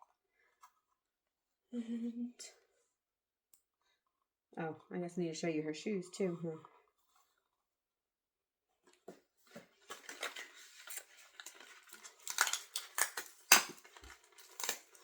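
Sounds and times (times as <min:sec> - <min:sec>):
plastic pieces rustling and clicking: 0:09.8 - 0:15.0.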